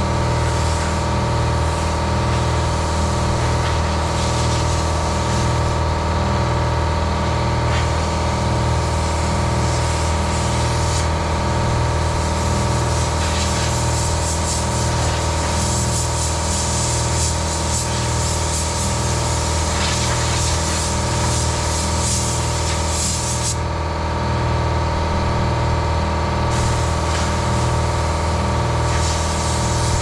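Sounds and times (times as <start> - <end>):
air compressor running: 0.0 - 30.0
compressed air hissing: 12.0 - 23.6, 26.5 - 30.0.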